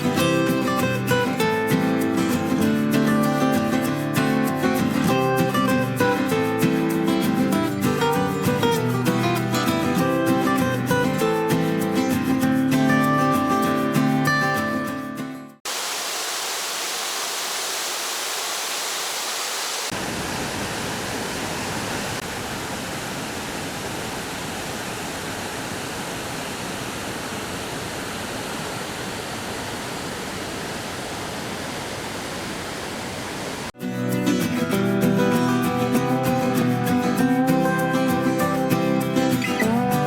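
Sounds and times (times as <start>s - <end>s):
waterfall rushing: 15.7s - 33.7s.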